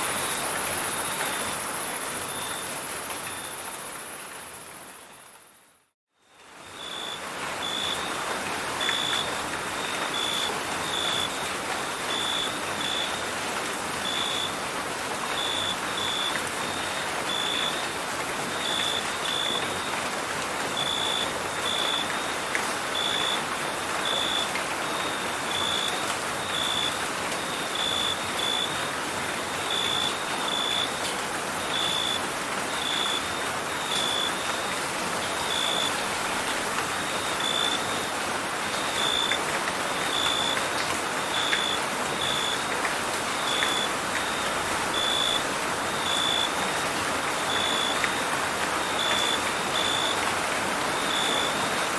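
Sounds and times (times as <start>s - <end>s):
steady rain falling: 0.0s - 51.9s
cricket chirping: 43.4s - 46.5s, 47.5s - 50.2s.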